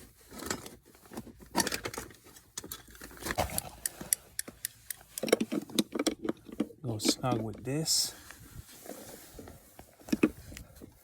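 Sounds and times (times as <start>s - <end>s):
metal parts clicking and scraping: 1.5s - 7.6s.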